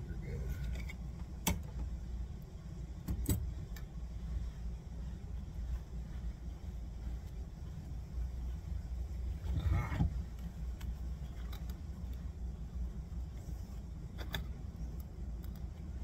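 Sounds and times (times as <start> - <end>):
steady low hum: 0.0 - 16.0
light clicks and taps: 10.0 - 12.3, 14.1 - 16.0.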